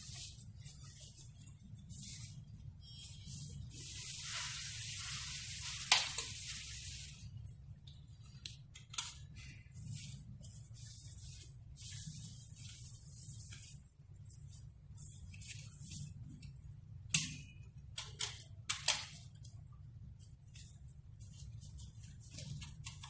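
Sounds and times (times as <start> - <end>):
steady low hum: 0.0 - 5.8
rustling and scraping handling noise: 0.0 - 7.0, 8.1 - 16.7, 19.1 - 23.0.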